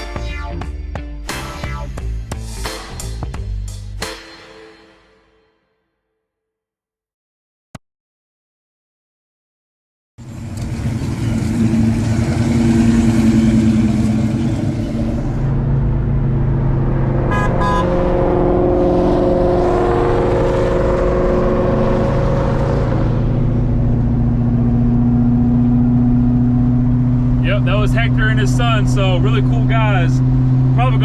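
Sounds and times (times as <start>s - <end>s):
car engine running: 10.2s - 31.0s.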